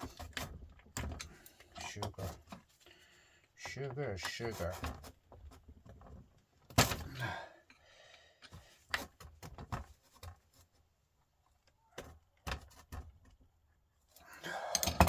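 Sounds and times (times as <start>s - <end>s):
hand tools clinking on metal: 14.4s - 15.0s.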